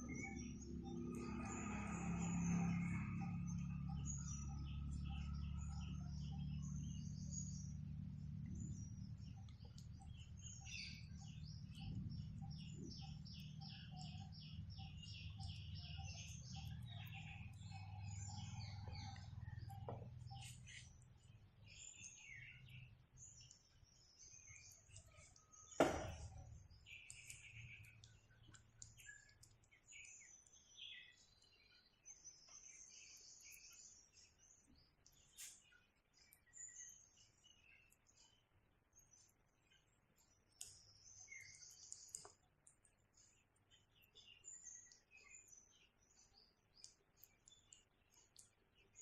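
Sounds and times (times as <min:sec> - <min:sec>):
low steady hum: 0:00.0 - 0:23.7
small birds chirping: 0:00.0 - 0:49.0.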